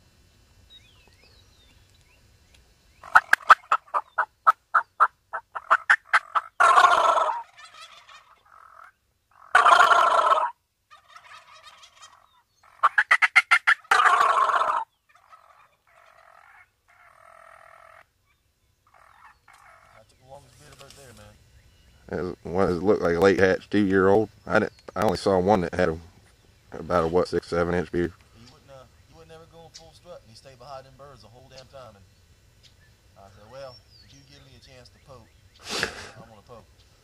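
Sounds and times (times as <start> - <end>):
turkeys gobbling: 3.0 - 18.1, 18.9 - 20.1.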